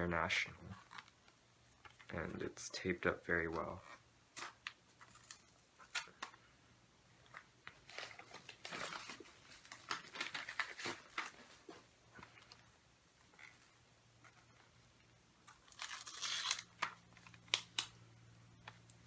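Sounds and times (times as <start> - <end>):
wrapping paper crinkling: 7.3 - 12.6, 15.4 - 17.9
paper tearing: 15.5 - 17.8.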